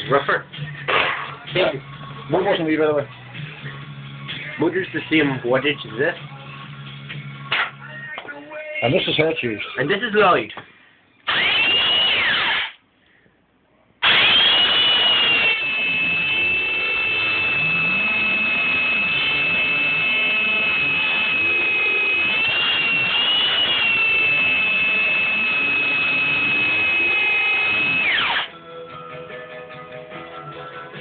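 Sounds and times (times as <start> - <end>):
belt sander whining: 11.3 - 12.7, 14.0 - 28.5.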